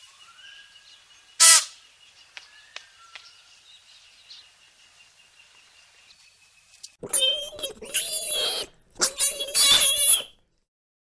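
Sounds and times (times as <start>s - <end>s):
loud harsh bird call: 1.4s - 1.8s, 7.1s - 10.3s
birds chirping and whistling: 7.0s - 10.3s.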